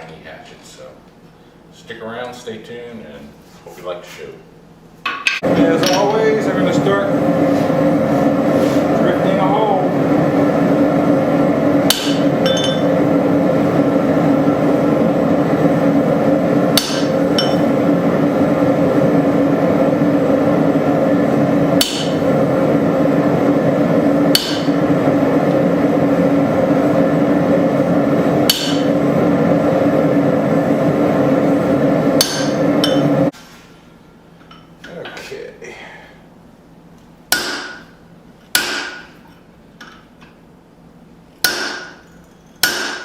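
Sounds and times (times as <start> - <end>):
loud steady roar: 5.4 - 33.3.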